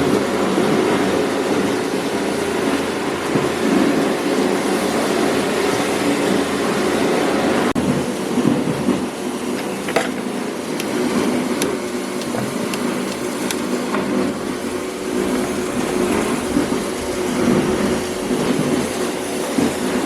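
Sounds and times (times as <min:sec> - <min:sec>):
machine clattering: 0:12.2 - 0:20.0.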